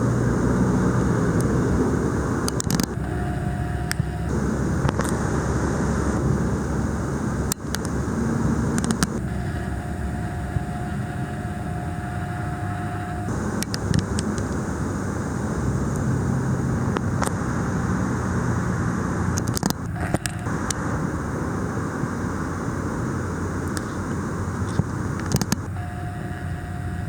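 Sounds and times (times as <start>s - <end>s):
camera zoom motor whining: 0.0s - 16.2s, 19.3s - 20.8s, 23.6s - 27.0s
low outdoor rumble: 0.0s - 27.0s
camera clicks: 2.4s - 3.0s, 19.4s - 20.8s, 24.7s - 25.7s.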